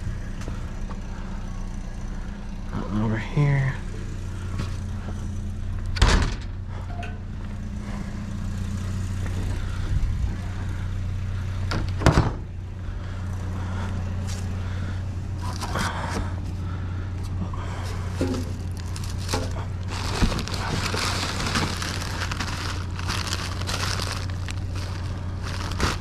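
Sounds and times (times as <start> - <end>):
vehicle engine idling: 0.0 - 26.0
loud slams: 6.0 - 6.6.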